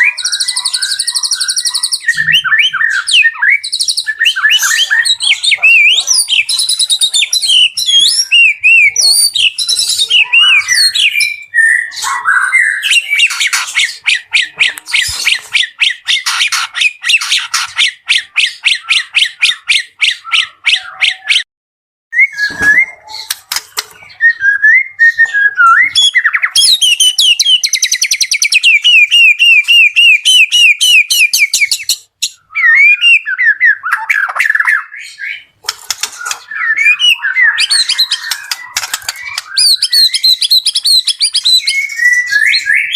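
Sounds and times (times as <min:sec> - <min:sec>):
bird squawks: 0:00.0 - 0:21.4, 0:26.0 - 0:42.9
songbird singing: 0:00.0 - 0:21.5, 0:22.2 - 0:42.9.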